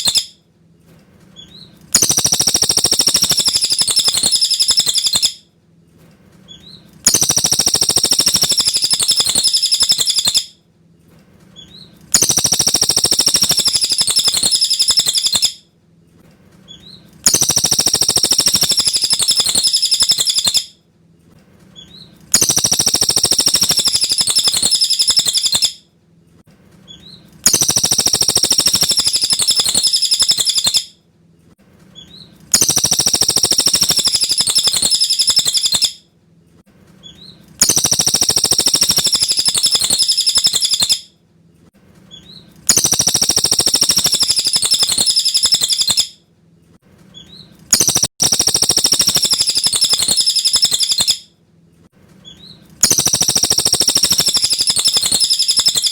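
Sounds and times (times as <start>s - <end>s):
bird twittering song: 0.0s - 0.3s, 1.4s - 5.4s, 6.5s - 10.5s, 11.6s - 15.6s, 16.7s - 20.7s, 21.8s - 25.8s, 26.9s - 30.9s, 32.0s - 36.0s, 37.0s - 41.0s, 42.1s - 46.1s, 47.2s - 51.2s, 52.2s - 55.9s.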